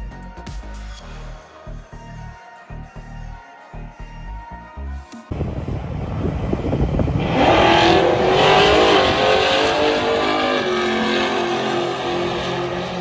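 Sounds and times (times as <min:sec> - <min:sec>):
drag car accelerating hard: 0:05.7 - 0:13.0.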